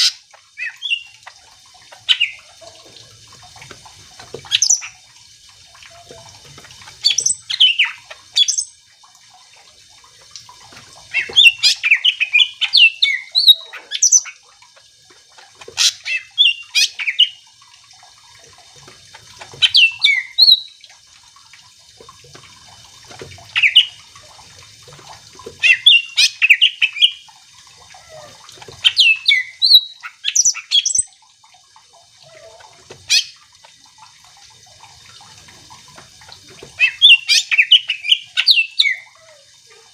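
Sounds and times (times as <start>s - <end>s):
bird singing chirps and whistles: 4.5s - 4.9s, 7.1s - 8.7s, 11.2s - 14.4s, 19.6s - 20.8s, 28.9s - 31.1s.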